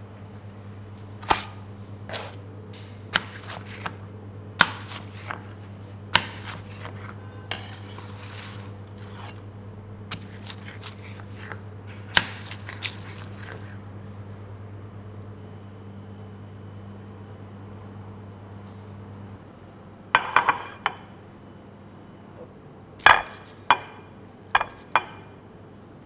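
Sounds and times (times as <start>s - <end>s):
steady low hum: 0.0s - 23.0s
metal kitchenware clinking: 1.2s - 2.4s, 6.2s - 9.5s
short scraping: 6.4s - 9.5s.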